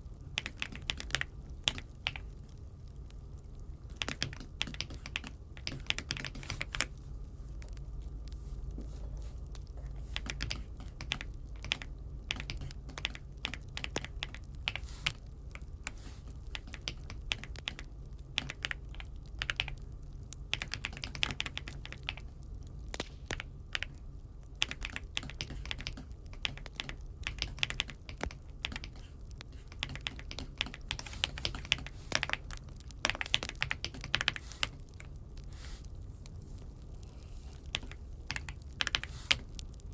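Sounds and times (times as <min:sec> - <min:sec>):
mechanical keyboard typing: 0:00.4 - 0:02.3, 0:03.9 - 0:07.0, 0:09.6 - 0:19.8, 0:20.5 - 0:35.1, 0:37.7 - 0:39.6.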